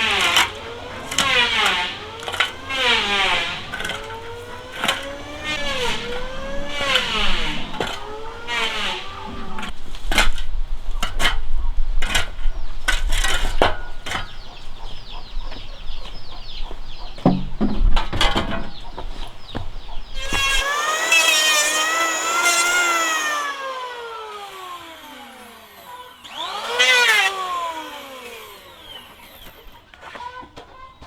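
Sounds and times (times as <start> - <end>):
power tool whine: 0.0 - 10.4, 20.1 - 30.8.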